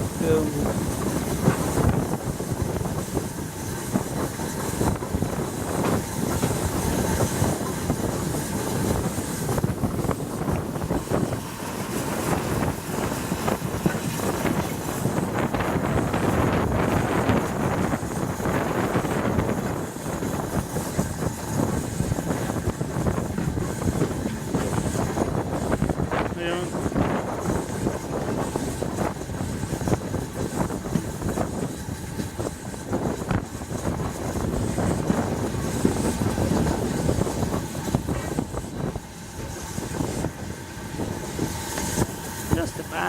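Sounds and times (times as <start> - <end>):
train rumbling and clattering: 0.0 - 43.0.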